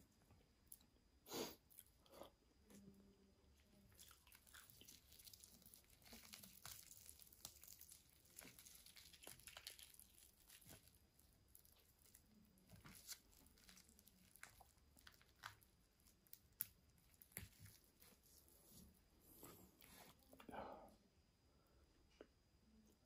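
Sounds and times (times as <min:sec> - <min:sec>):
crackly chewing: 0:03.6 - 0:20.5
crisp bite crunch: 0:03.9 - 0:17.8.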